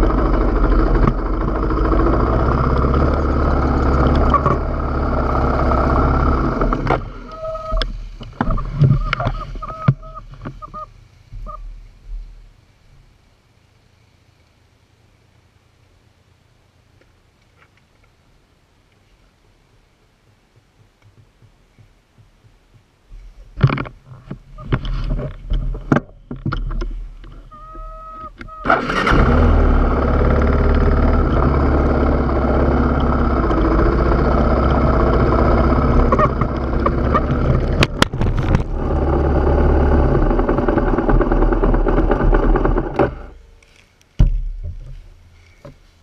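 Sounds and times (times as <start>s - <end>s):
motorcycle engine running: 0.0s - 10.7s, 27.8s - 45.5s.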